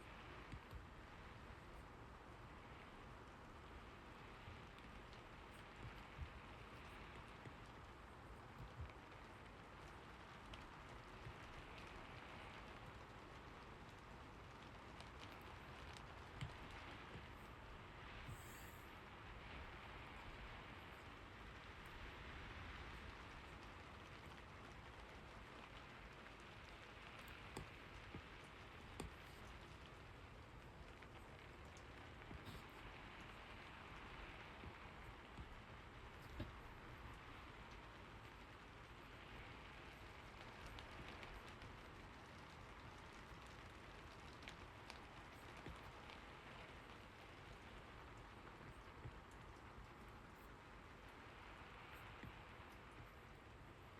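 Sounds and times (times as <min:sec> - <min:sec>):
soft rain: 0:00.0 - 0:53.9
faint clicks: 0:22.9 - 0:53.2.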